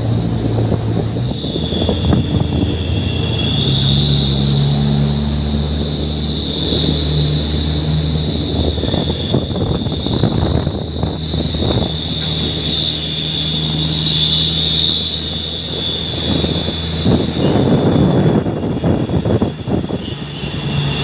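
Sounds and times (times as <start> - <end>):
diesel truck engine running: 0.0 - 21.0
high-pitched whine: 0.0 - 21.0.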